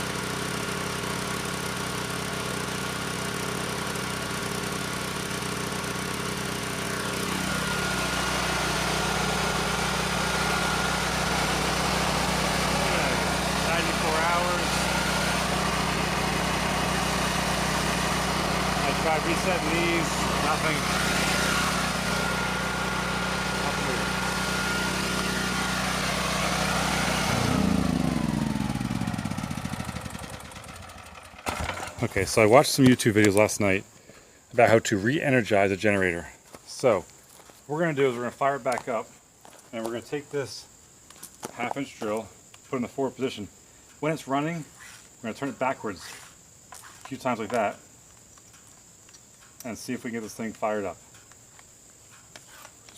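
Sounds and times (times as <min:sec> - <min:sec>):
generator engine running: 0:00.0 - 0:33.3
steady high whine: 0:06.7 - 0:33.9.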